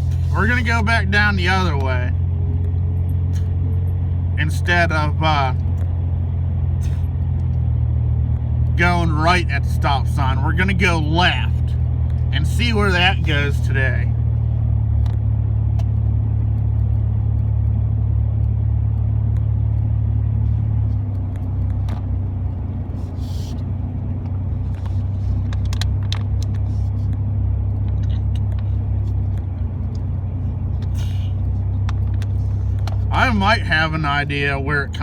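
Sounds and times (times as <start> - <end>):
road noise: 0.0 - 35.0
truck engine drone: 0.0 - 35.0.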